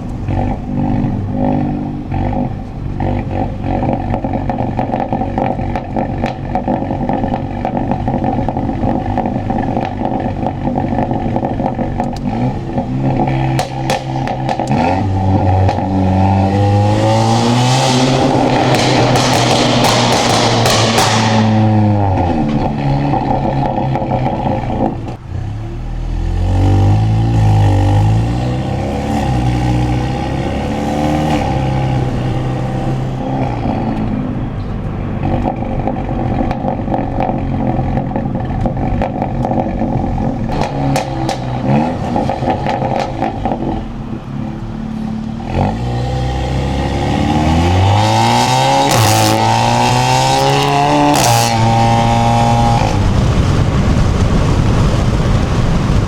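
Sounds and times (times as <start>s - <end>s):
car engine revving and accelerating: 0.0s - 56.0s
exhaust crackles and pops: 2.2s - 25.3s, 35.2s - 44.0s, 47.6s - 56.0s.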